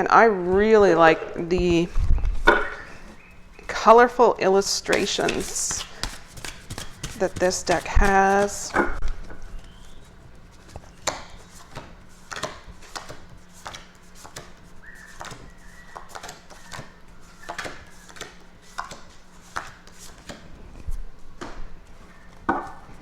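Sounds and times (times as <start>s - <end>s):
cards being shuffled: 4.8s - 8.8s, 10.6s - 21.0s.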